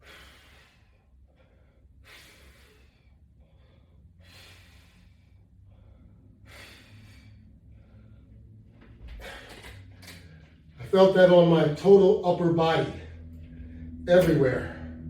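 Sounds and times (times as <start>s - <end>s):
man breathing hard: 0.0s - 10.6s.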